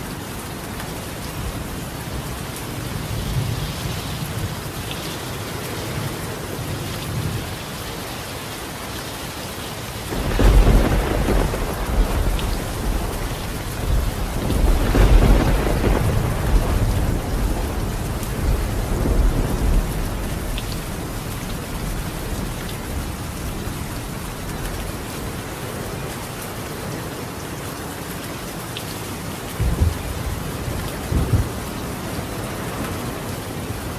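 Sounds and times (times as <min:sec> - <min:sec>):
heavy rain on a tiled roof: 0:00.0 - 0:33.9
thunder rumbling: 0:10.1 - 0:25.0, 0:29.6 - 0:33.9.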